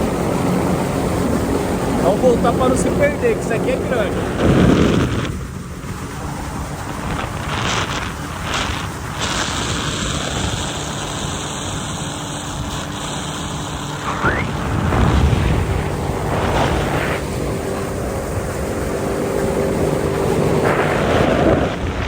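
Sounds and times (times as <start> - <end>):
vehicle engine running: 0.0 - 22.0
wind buffeting microphone: 0.0 - 22.0
brief rising sweep: 13.7 - 17.2.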